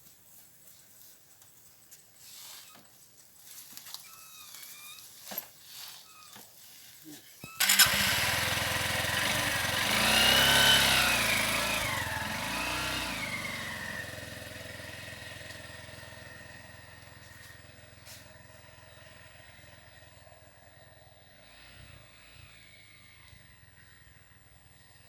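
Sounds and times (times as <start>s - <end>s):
engine starting and revving: 7.6s - 25.0s.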